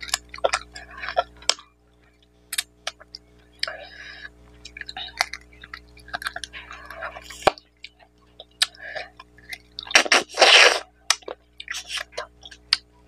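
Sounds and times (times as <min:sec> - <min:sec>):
wet chewing and lip smacks: 0:04.5 - 0:10.2.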